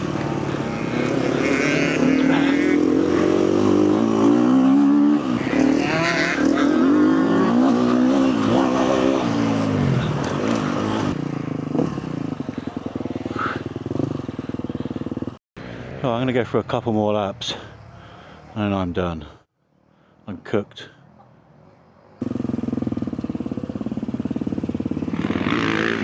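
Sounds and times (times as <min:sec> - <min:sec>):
motocross bike engine revving: 0:00.0 - 0:15.4, 0:22.2 - 0:26.0.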